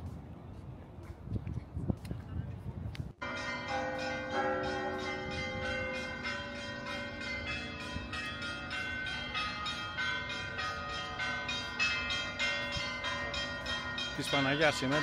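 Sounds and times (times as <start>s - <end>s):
church bells pealing: 3.2s - 15.0s.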